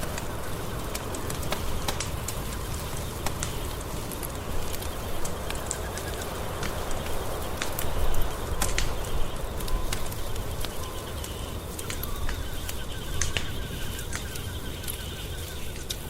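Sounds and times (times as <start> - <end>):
wood fire crackling: 0.0 - 16.0
faint rapid chirping trill: 4.9 - 16.0.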